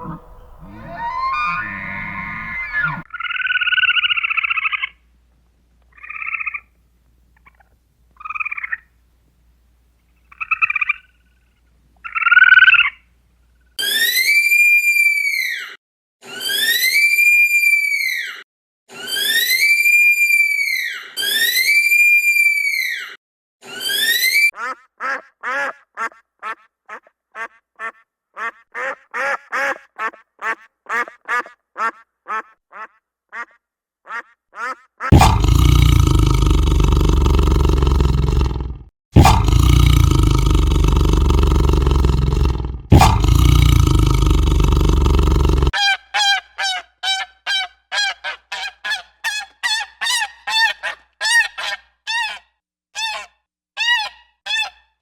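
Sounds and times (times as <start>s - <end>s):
animal buzzy trilling croaks: 0.0s - 3.6s, 35.1s - 45.8s
nasal quack-like animal calls: 24.6s - 35.4s.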